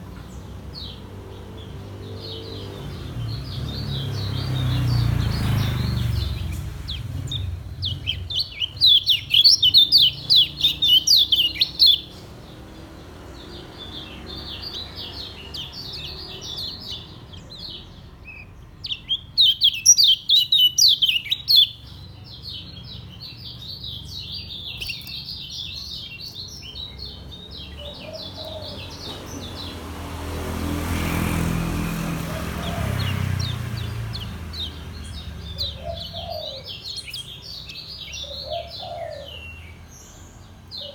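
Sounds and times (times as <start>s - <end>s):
softer bird chirping: 3.6s - 12.5s, 13.9s - 29.6s
bird fast high chirps: 4.0s - 12.2s, 14.5s - 21.9s.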